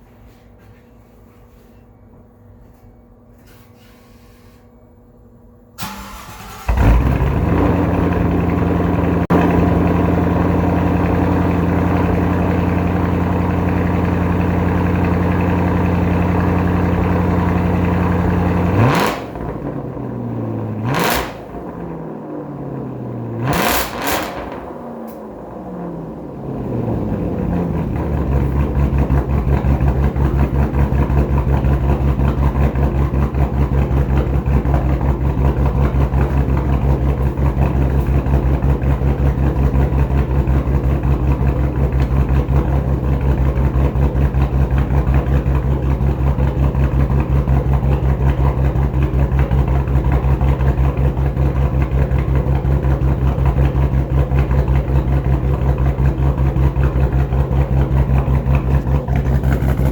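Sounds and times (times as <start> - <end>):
car engine choppy idle: 6.1 - 18.8, 26.8 - 59.9.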